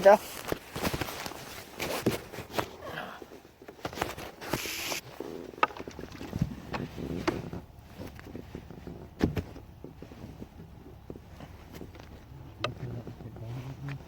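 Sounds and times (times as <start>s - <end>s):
knocks and clunks on kayak: 5.2s - 14.0s.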